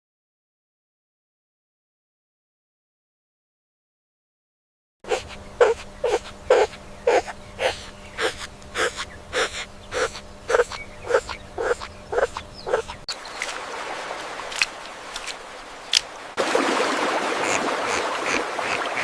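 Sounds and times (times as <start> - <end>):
steady hum: 5.0 - 16.4
animal crying calls: 5.1 - 13.1.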